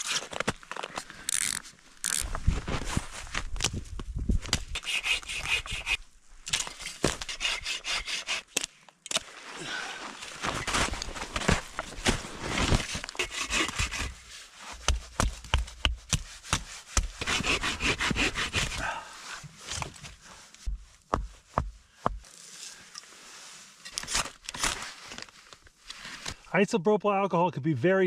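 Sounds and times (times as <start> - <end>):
rustling: 9.2 - 21.6.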